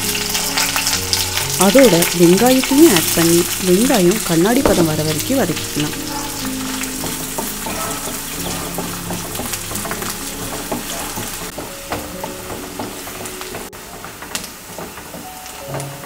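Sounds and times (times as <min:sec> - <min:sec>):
onions sizzling in oil: 0:00.0 - 0:16.0
soft background music: 0:00.0 - 0:16.0
wooden spatula scraping a pan: 0:05.9 - 0:15.3.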